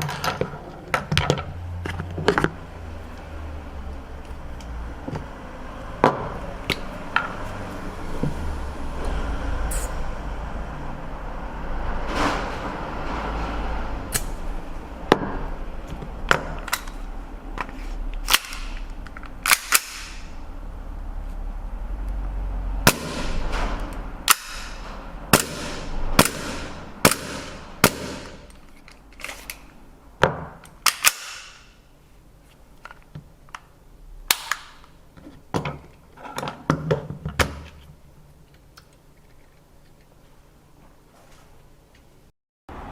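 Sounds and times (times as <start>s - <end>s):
airsoft pistol shots: 24.3s - 28.4s.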